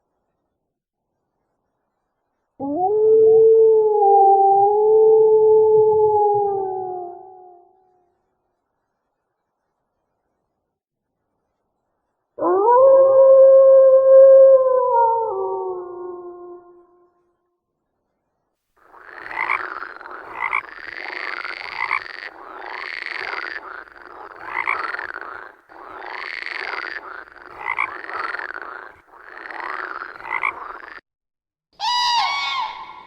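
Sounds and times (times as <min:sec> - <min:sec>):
frogs croaking in chorus: 0:18.8 - 0:31.0
animal call with stacked tones: 0:31.8 - 0:33.0.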